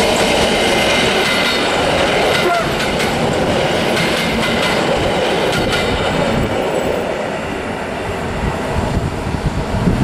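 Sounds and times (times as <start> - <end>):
wheels clicking over rail joints: 0.0 - 6.8
train running past: 0.0 - 10.0.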